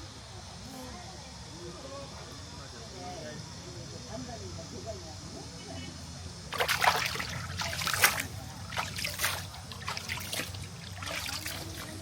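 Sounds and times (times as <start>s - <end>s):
water splashing in stream: 6.5s - 12.0s.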